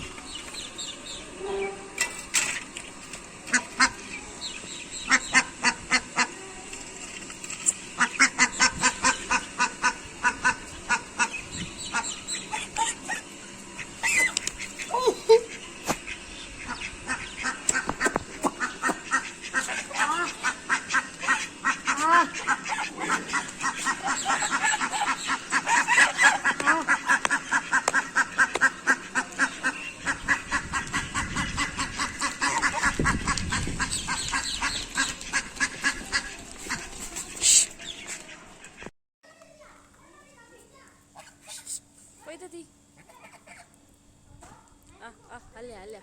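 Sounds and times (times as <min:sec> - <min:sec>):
ducks quacking: 0:03.5 - 0:04.2, 0:05.0 - 0:06.4, 0:07.7 - 0:38.9, 0:43.0 - 0:43.8.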